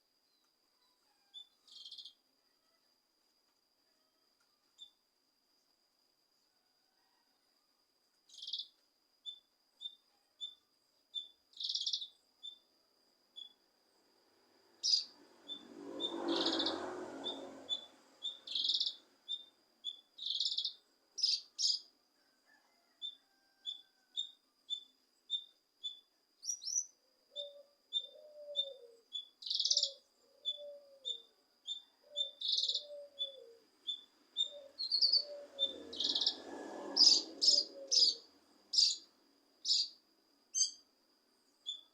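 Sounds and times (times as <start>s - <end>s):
lower arched bird call: 14.8s - 21.8s, 22.8s - 39.0s, 39.6s - 40.8s
bird chirping and singing: 28.0s - 36.4s, 37.0s - 38.2s, 38.8s - 39.0s, 39.7s - 39.9s.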